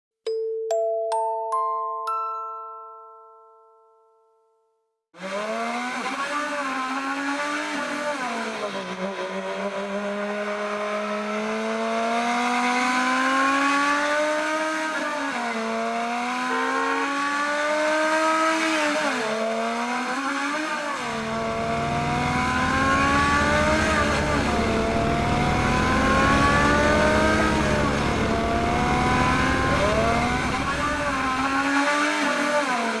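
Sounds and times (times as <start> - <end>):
car engine accelerating: 20.9 - 32.6
deep rumble: 21.2 - 31.7.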